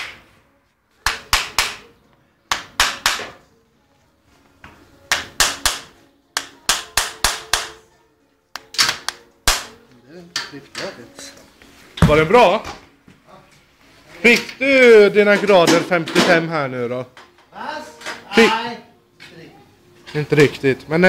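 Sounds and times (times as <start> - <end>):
hammer striking horseshoe nails: 1.0 - 1.9, 2.5 - 3.4, 5.1 - 7.9, 8.6 - 9.8.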